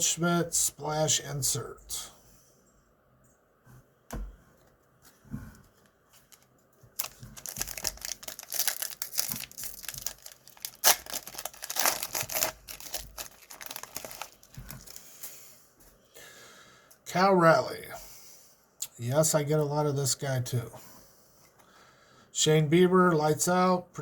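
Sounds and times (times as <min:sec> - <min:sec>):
card pack wrapper tearing and crinkling: 0:06.2 - 0:15.0.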